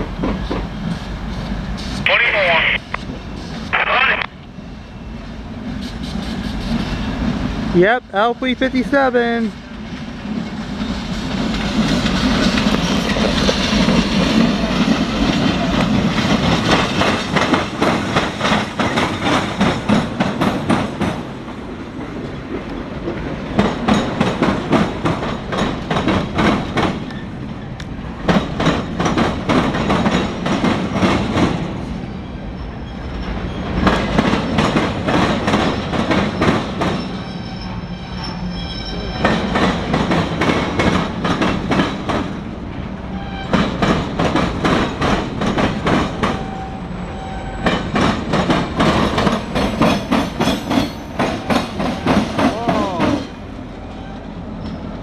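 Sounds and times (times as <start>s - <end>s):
train wheels click-clacking: 0.0s - 1.0s, 10.3s - 21.3s, 22.5s - 27.2s, 27.8s - 31.7s, 33.2s - 37.3s, 39.1s - 42.4s, 43.4s - 46.7s, 47.4s - 53.3s
train rumble: 0.0s - 55.0s
wheel squeal: 35.7s - 39.6s.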